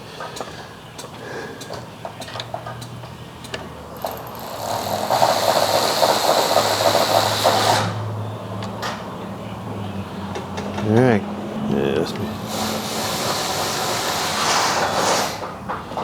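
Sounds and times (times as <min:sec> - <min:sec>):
air impact wrench rattling: 0:03.9 - 0:08.0, 0:12.3 - 0:15.5.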